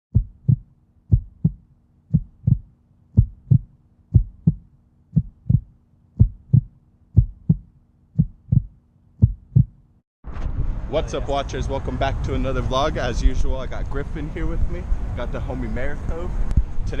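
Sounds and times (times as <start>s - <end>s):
heartbeat thumps: 0.1s - 9.8s.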